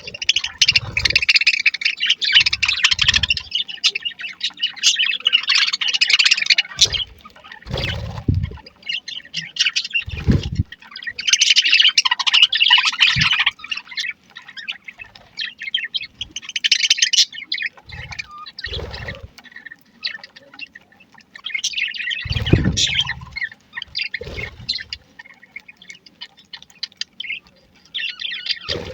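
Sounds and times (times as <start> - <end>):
budgerigars chirping: 0.0 - 28.9
low thuds: 7.7 - 8.6, 10.1 - 10.7.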